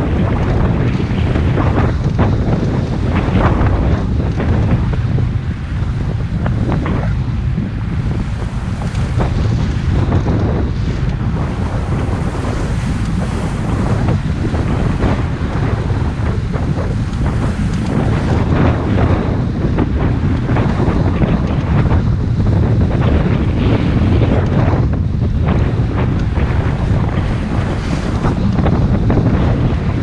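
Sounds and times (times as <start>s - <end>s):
hull slapping over waves: 0.0s - 30.0s
water rushing: 0.0s - 30.0s
wind buffeting microphone: 0.0s - 30.0s.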